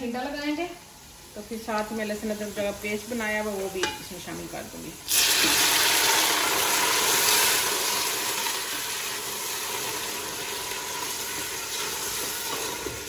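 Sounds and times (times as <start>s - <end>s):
onions sizzling in hot oil: 0.0s - 13.0s
water splashing into hot oil: 5.0s - 13.0s.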